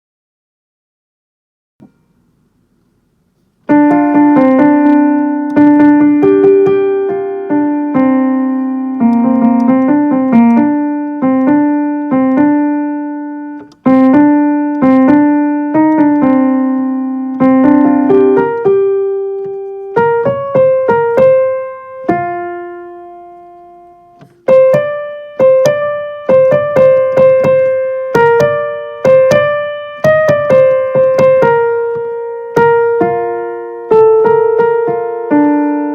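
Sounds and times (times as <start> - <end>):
piano melody: 3.6 - 35.9.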